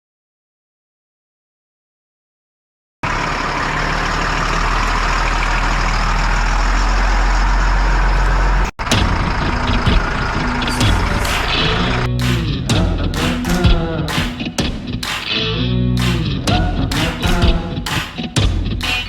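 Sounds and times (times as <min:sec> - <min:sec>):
diesel engine humming: 0:03.0 - 0:19.0.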